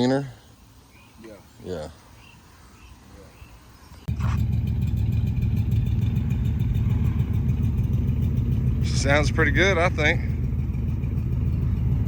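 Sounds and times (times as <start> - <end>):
car engine starting and idling: 4.1 - 12.0.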